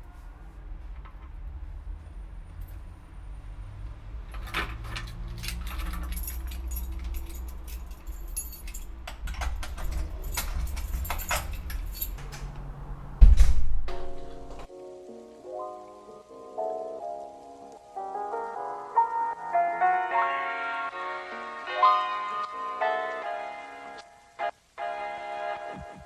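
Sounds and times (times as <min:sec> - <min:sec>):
keys jangling: 0:00.9 - 0:03.4, 0:04.2 - 0:13.0
heavy thump: 0:13.1 - 0:14.7.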